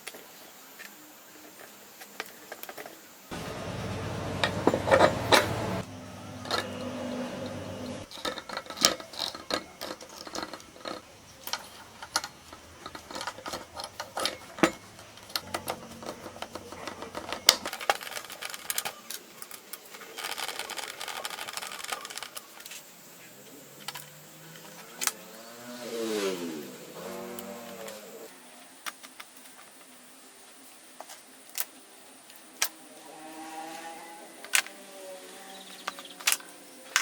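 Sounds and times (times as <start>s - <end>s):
metal parts and tools clinking: 4.4s - 22.9s, 32.3s - 37.0s.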